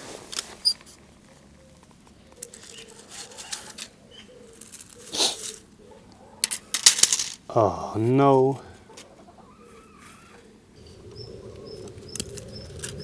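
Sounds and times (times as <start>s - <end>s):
handling rustles and knocks: 6.4s - 7.5s
faint low bird call: 8.7s - 13.0s.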